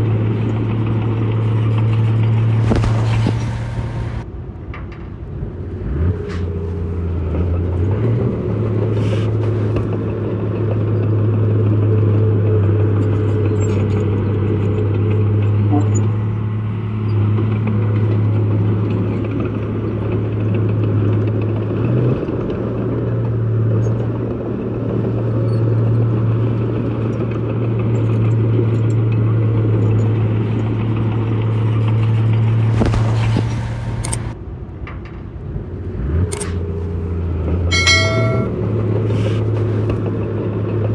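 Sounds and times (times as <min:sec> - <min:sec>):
heavy diesel engine running: 0:00.0 - 0:04.3.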